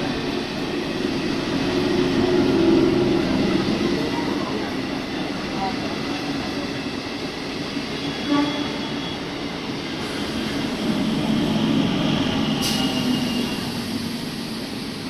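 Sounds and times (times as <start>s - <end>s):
train wheels rumbling on rail: 0.0s - 15.0s
high wheel squeal: 7.9s - 14.2s.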